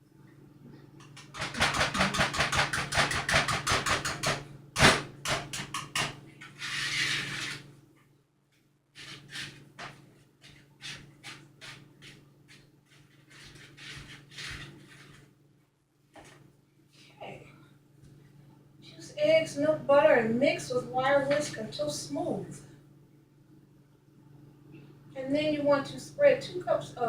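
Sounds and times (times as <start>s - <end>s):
whisk beating batter in bowl: 1.1s - 4.3s.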